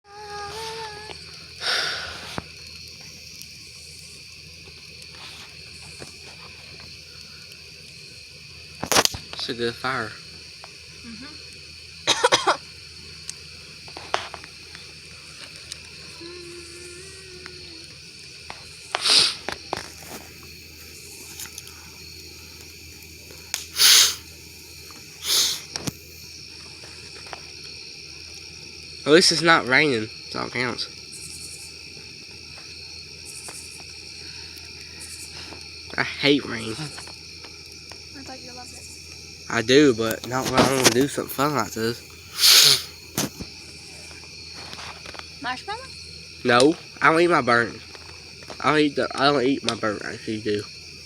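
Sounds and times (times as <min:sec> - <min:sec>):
crickets chirring: 0:00.0 - 0:51.0
campfire crackling and hissing: 0:00.1 - 0:51.0
sharp pop of fire: 0:08.8 - 0:09.4, 0:23.5 - 0:24.2.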